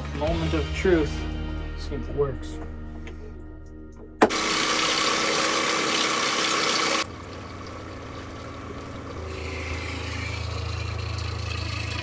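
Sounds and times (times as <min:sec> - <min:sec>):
electric pump humming: 0:04.1 - 0:12.0.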